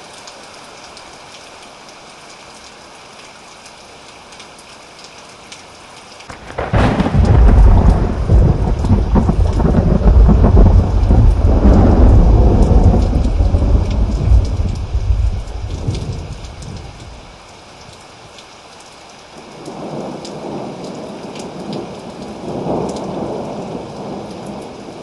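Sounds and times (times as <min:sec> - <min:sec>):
steady rain: 0:00.0 - 0:25.0
thunderclap and rumble: 0:06.3 - 0:17.4, 0:19.7 - 0:24.7.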